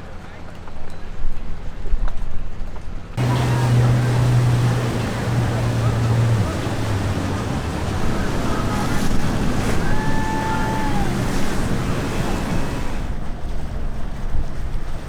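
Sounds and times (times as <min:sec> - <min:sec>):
boat engine rumble: 0:03.2 - 0:15.0
waves: 0:03.2 - 0:15.0
wind buffeting microphone: 0:03.2 - 0:15.0.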